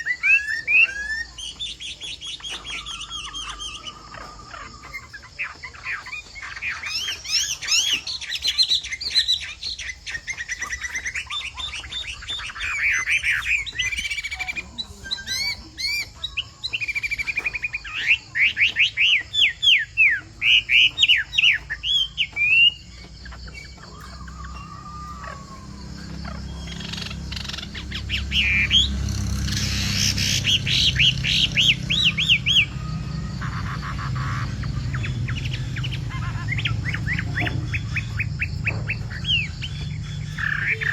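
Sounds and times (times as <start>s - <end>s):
bird singing whistled phrases: 0.0s - 40.9s
low rumble: 25.4s - 40.9s.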